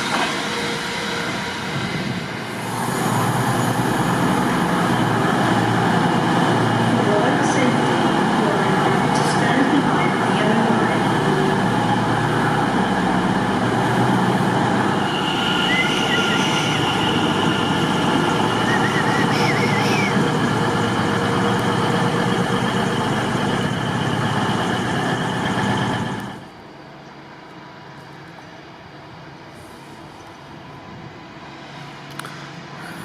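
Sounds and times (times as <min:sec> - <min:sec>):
station background noise: 0:00.0 - 0:33.0
train rumbling through station: 0:00.0 - 0:33.0
wheels squealing on track: 0:14.9 - 0:20.3.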